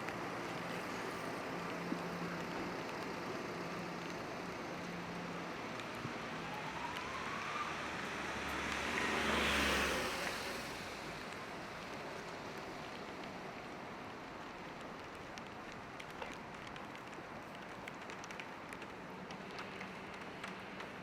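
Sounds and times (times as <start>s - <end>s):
car passing on wet street: 0.0s - 21.0s
rain hissing: 0.2s - 21.0s.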